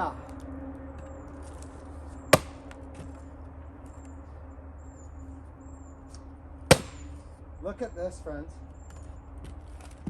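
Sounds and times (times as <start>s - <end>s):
steady low hum: 0.0s - 10.0s
axe splitting firewood: 2.3s - 3.1s, 6.7s - 7.3s.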